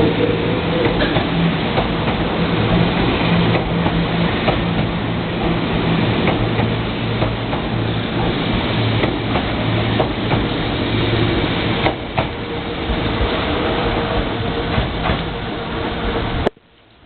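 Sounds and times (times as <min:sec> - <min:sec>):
electric train running on track: 0:00.0 - 0:16.5.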